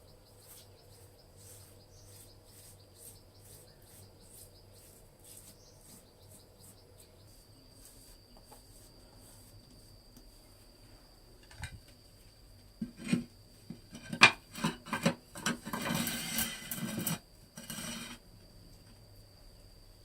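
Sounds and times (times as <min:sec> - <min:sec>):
insects chirring: 0:00.0 - 0:20.0
rasping scrape: 0:00.4 - 0:09.6, 0:13.9 - 0:18.2.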